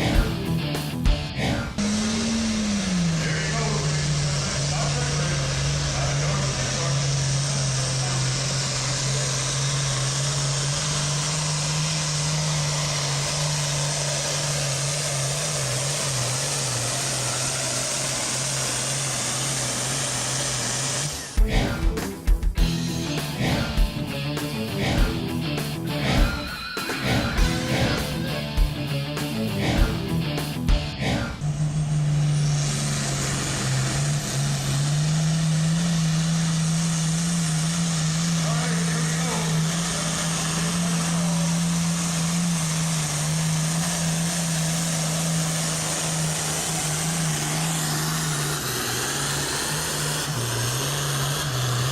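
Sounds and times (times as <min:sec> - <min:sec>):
rock music with drums: 0:00.0 - 0:03.4, 0:21.4 - 0:31.6
tractor diesel engine at high revs: 0:00.0 - 0:51.9.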